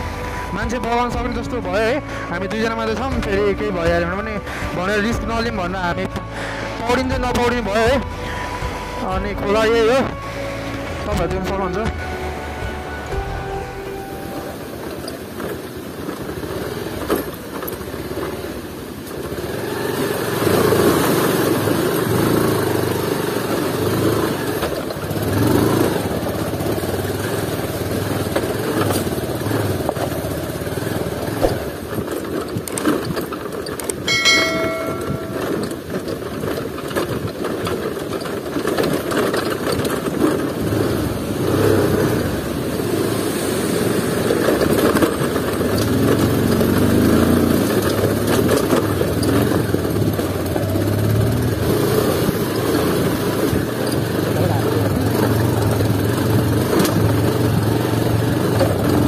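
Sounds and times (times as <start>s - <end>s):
brief higher-pitched tone: 11.9s - 15.2s, 34.1s - 35.8s
motorcycle engine revving: 14.6s - 59.0s.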